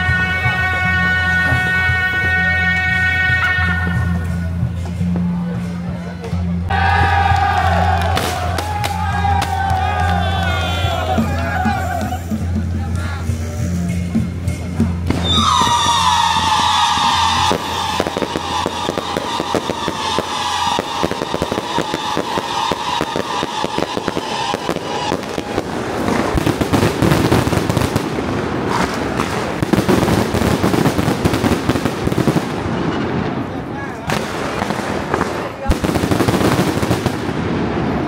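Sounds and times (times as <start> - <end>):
fireworks crackling: 15.1 - 38.0.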